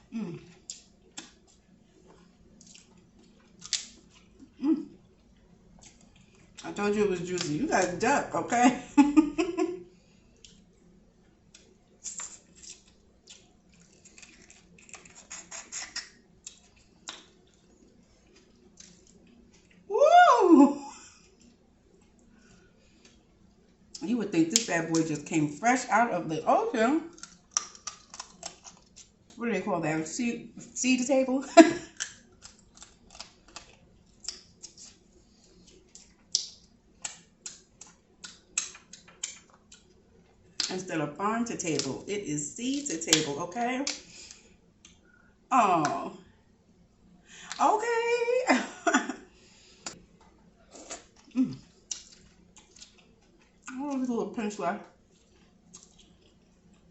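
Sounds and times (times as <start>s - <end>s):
wet chewing clicks: 2.6s - 4.5s, 11.5s - 17.7s, 27.1s - 29.4s, 35.6s - 40.0s, 40.6s - 40.9s, 50.7s - 53.8s, 55.1s - 56.9s.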